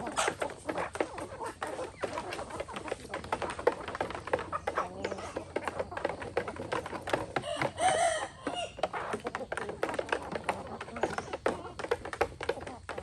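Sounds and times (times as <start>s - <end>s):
chicken call: 7.4s - 9.1s.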